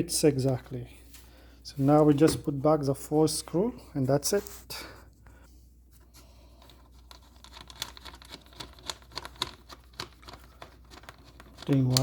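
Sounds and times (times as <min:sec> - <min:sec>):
plastic cover clicks and scratches: 0:07.0 - 0:12.0.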